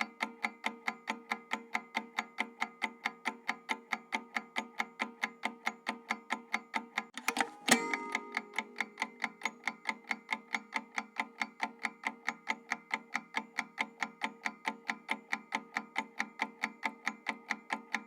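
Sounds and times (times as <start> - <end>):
clock ticking: 7.2 - 9.3.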